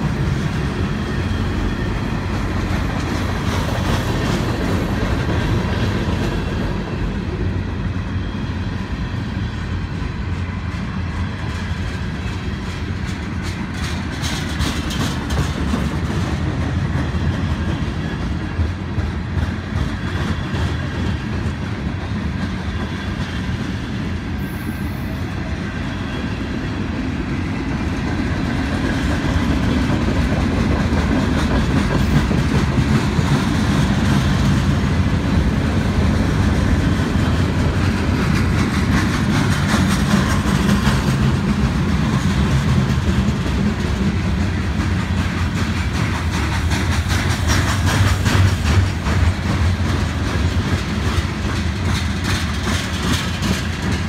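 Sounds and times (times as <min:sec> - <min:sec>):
steel wheels rumbling on rail: 0:00.0 - 0:54.0
wheels clicking over rail joints: 0:10.2 - 0:23.4, 0:27.8 - 0:54.0.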